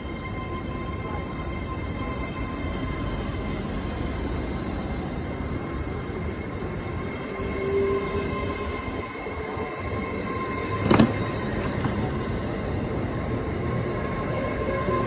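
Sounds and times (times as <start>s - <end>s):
train rumble: 8.9s - 15.0s.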